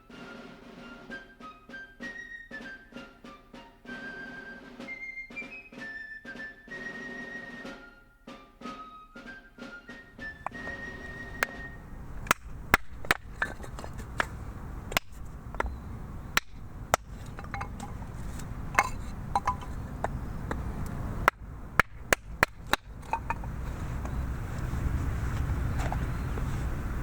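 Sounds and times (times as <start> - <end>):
axe chopping firewood: 10.1 - 24.2.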